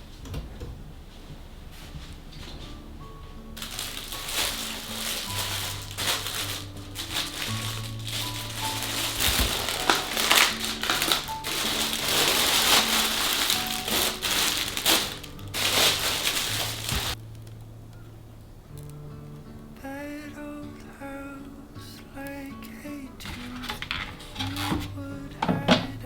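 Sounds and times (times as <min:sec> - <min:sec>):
soft background music: 0:01.4 - 0:26.0
plastic packaging crinkling: 0:03.5 - 0:18.1, 0:23.2 - 0:25.8.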